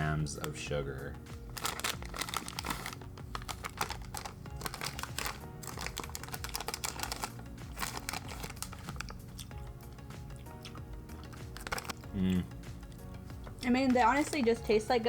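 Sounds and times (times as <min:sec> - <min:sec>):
background music: 0:00.0 - 0:15.0
plastic bag crinkling: 0:01.5 - 0:09.4, 0:11.2 - 0:12.0, 0:13.7 - 0:14.8.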